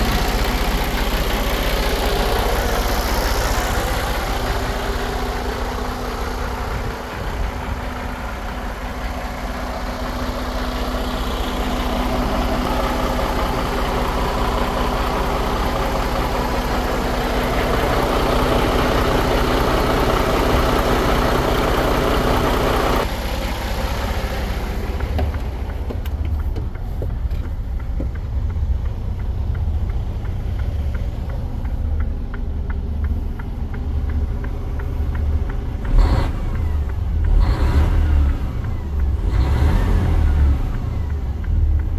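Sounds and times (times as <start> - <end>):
engine ticking: 0.0 - 41.9
truck diesel engine running: 0.0 - 41.9.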